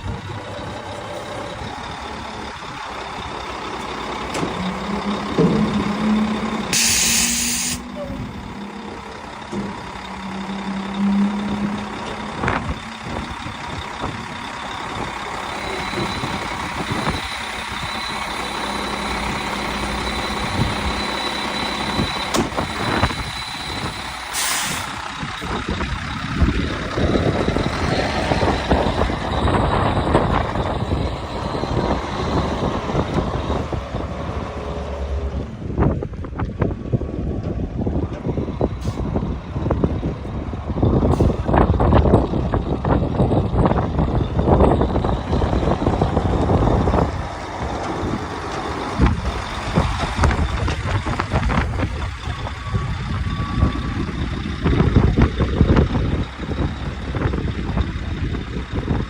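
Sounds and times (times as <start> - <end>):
diesel truck engine running: 0.0 - 59.0
high whine: 3.9 - 24.2
air hiss: 6.7 - 7.8.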